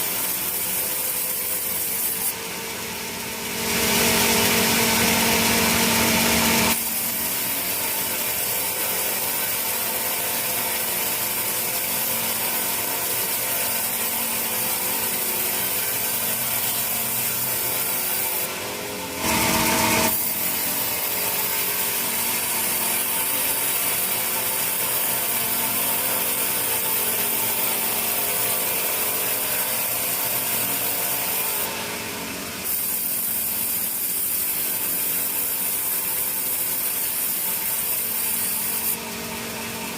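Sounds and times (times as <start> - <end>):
saw cutting wood: 0.0 - 39.9
machine hum: 1.8 - 9.6.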